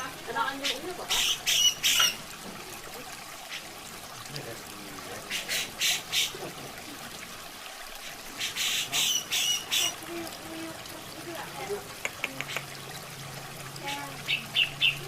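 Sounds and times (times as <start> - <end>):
trickle of running water: 0.0 - 15.0
bird giving scratchy calls: 0.6 - 2.2, 5.3 - 6.4, 8.0 - 10.0.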